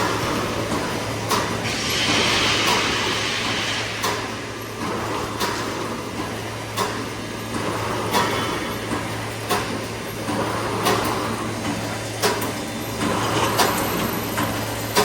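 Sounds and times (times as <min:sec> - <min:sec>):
sharp machine clack: 0:00.0 - 0:07.2.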